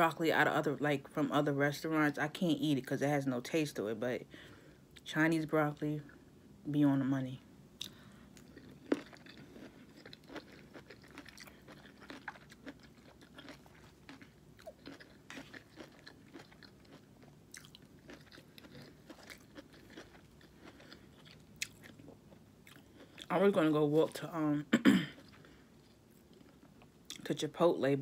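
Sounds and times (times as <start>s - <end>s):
person chewing food: 7.8s - 23.3s, 25.2s - 27.2s.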